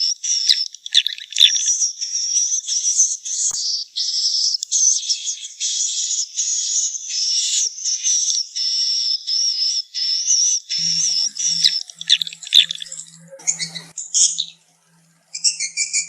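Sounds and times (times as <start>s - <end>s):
swiftlet twittering chirps: 0.3s - 1.8s, 10.7s - 14.6s.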